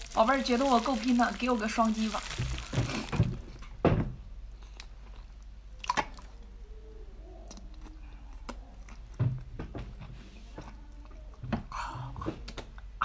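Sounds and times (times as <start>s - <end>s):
person biting and chewing: 1.9s - 3.4s
wet mouth clicks and squishes: 4.6s - 6.4s.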